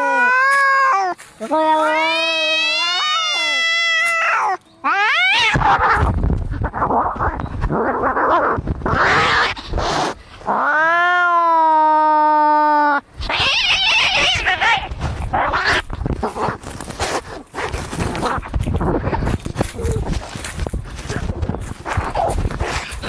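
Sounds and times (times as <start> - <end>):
cat yowling: 0.0 - 6.0, 10.6 - 15.8
cats hissing and spitting: 5.4 - 10.6, 13.2 - 23.0.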